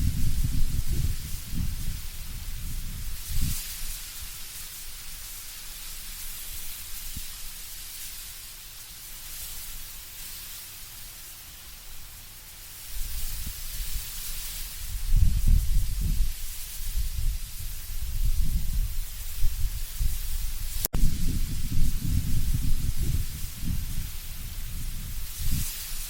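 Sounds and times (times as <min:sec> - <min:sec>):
leaves rustling: 0:00.0 - 0:26.0
wind through trees: 0:00.0 - 0:26.0
low gusty rumbles: 0:17.0 - 0:25.6.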